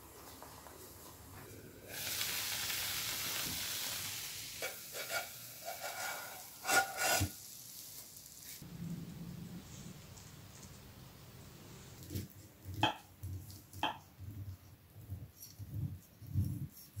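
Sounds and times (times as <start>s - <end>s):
potato cake sizzling in oil: 1.8s - 8.6s.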